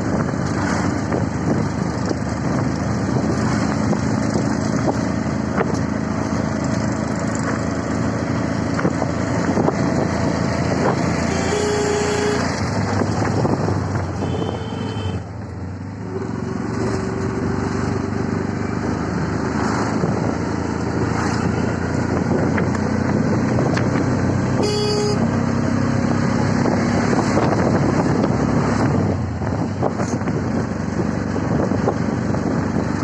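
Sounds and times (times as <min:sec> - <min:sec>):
auto-rickshaw engine and road noise: 0:00.0 - 0:33.0
vehicle horn toots: 0:11.2 - 0:12.6, 0:14.2 - 0:15.3, 0:24.6 - 0:25.3.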